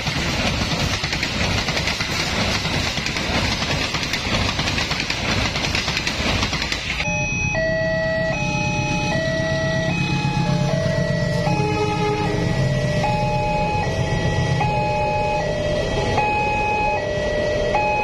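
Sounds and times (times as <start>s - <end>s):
train wheels rushing on rail: 0.0s - 7.1s, 8.4s - 18.0s
level-crossing warning alarm: 7.0s - 18.0s.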